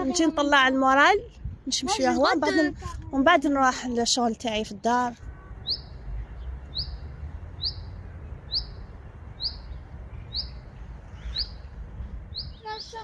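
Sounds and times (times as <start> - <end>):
small bird chirping: 5.2 - 13.0.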